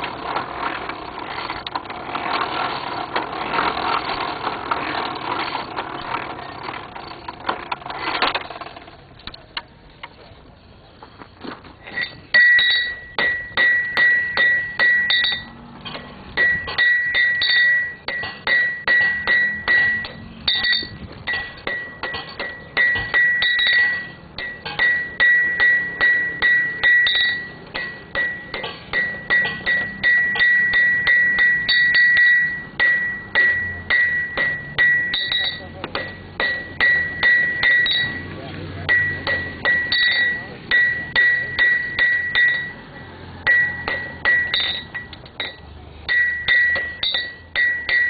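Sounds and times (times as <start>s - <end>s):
anvil ringing: 11.9s - 48.0s
hammer striking metal on anvil: 12.0s - 48.0s.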